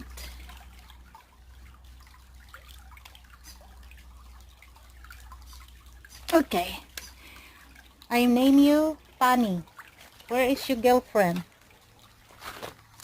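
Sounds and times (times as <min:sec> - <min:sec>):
creek water trickling: 0:00.0 - 0:13.0
faint drips and small splashes: 0:00.0 - 0:13.0.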